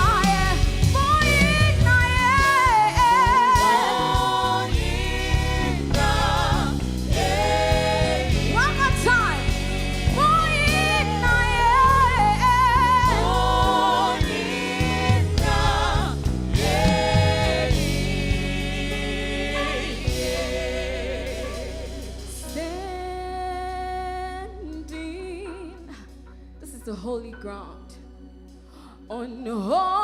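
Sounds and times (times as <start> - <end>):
band accompaniment: 0.0 - 23.9
gospel choir singing: 0.0 - 24.5.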